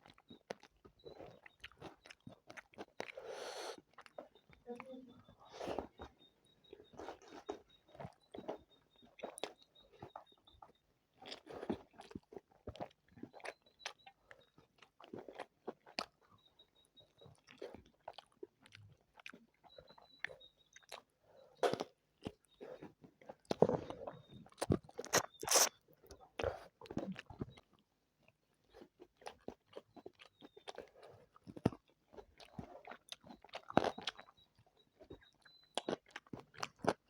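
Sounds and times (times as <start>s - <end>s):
person chewing and biting food: 0.0s - 4.3s, 11.2s - 14.1s, 14.8s - 16.2s, 17.4s - 21.0s, 21.6s - 27.5s, 28.7s - 34.4s.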